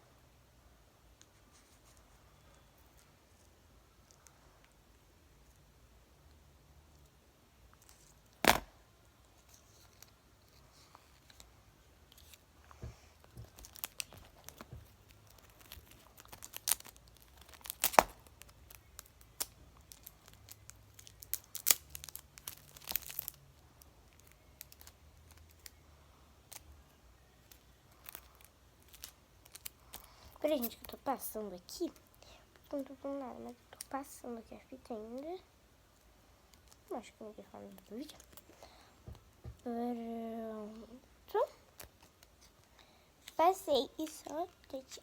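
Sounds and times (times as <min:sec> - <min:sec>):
adhesive tape ripping: 0:08.4 - 0:08.7, 0:13.6 - 0:23.4
paper crinkling: 0:12.1 - 0:23.4, 0:27.5 - 0:31.0.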